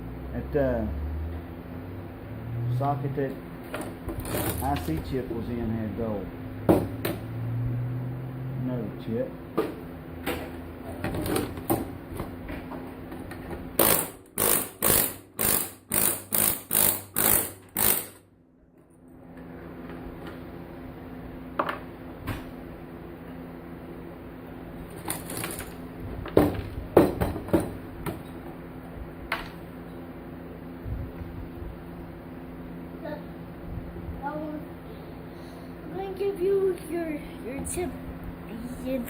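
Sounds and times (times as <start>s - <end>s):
pneumatic air chisel hammering: 13.8s - 18.2s.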